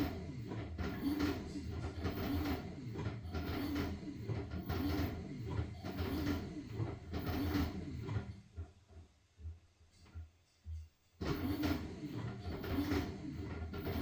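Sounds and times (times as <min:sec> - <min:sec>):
washing machine motor hum: 0:00.0 - 0:08.7, 0:11.2 - 0:14.0.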